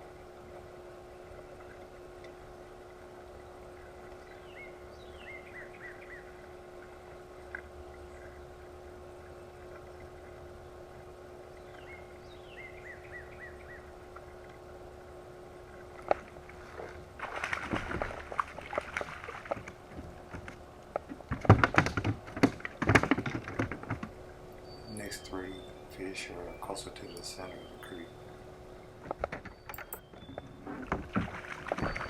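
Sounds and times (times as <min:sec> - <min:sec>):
low hum: 0:00.0 - 0:32.0
repeated chirps: 0:29.7 - 0:30.0.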